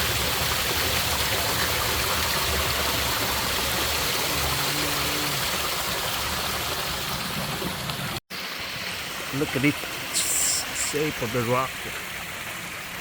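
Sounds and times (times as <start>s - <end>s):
creek water rushing over rocks: 0.0s - 13.0s.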